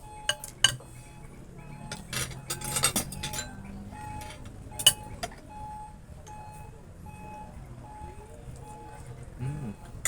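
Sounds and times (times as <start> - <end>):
cutlery clinking on plates: 1.9 - 3.6, 4.2 - 5.4
cutlery scraping: 1.9 - 5.1.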